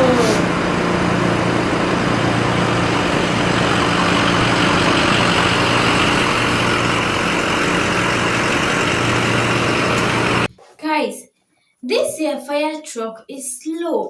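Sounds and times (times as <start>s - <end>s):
fire truck engine running: 0.0s - 10.5s.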